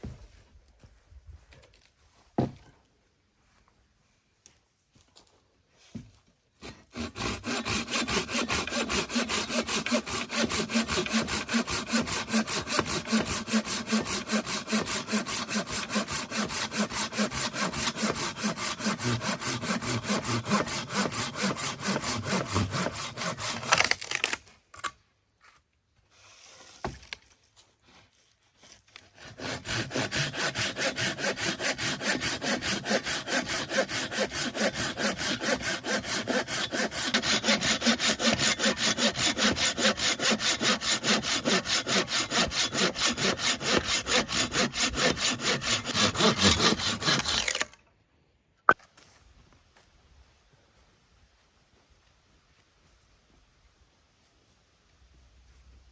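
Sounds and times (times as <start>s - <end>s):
hand saw cutting wood: 6.6s - 24.4s, 28.6s - 47.8s.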